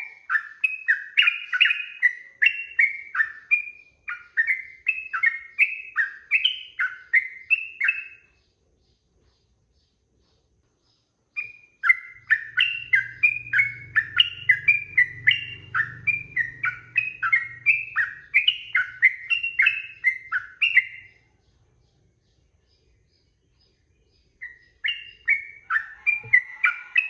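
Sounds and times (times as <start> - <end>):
bird singing bubbly notes: 11.4 - 21.2.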